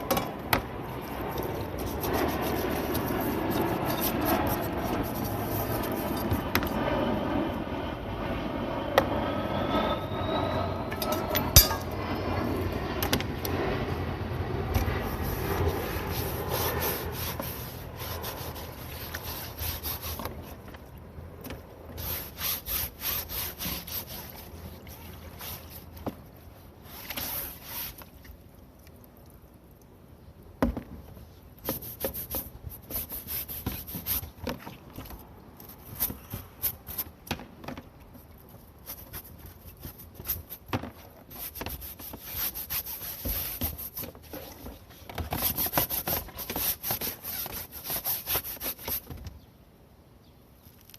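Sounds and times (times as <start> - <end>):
scrubbing metal filter: 0.0 - 6.5.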